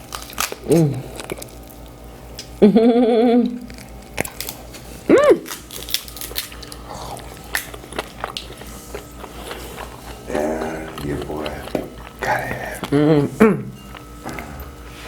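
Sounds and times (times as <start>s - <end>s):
chewing: 0.0s - 2.6s, 3.4s - 15.0s
person humming mmm: 0.6s - 1.3s, 2.6s - 3.7s, 10.2s - 14.8s
shell cracking: 5.4s - 8.6s.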